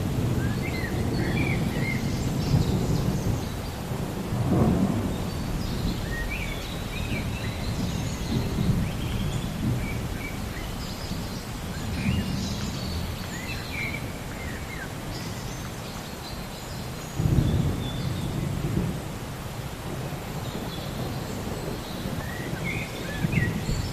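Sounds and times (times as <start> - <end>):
low rumble of thunder: 0.0 - 15.5, 17.1 - 23.9
birds chirping: 4.6 - 18.6.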